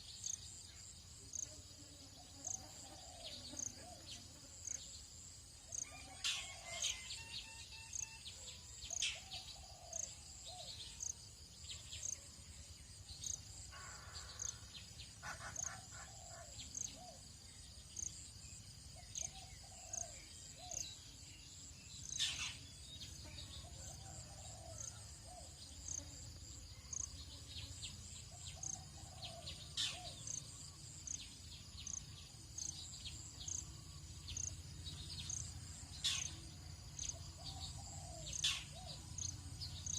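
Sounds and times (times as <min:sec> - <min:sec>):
birds calling and chirping: 0:05.7 - 0:08.1, 0:13.2 - 0:17.2, 0:18.9 - 0:21.0, 0:22.0 - 0:22.7, 0:28.3 - 0:39.9
lower curved bird calls: 0:28.3 - 0:31.2, 0:35.2 - 0:36.4, 0:37.0 - 0:39.9.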